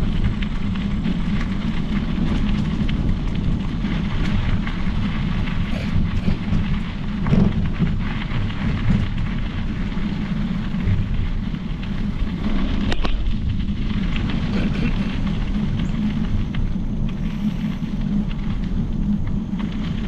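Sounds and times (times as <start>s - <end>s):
bike tyres rolling: 0.0s - 20.0s
wind on microphone: 0.0s - 20.0s
bike knocks and rattles: 5.7s - 9.4s.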